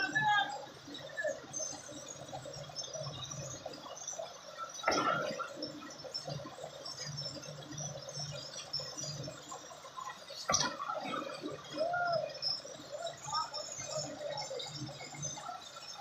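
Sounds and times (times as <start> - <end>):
rush of water: 2.9 - 16.0
water splashing and dripping: 4.8 - 15.6.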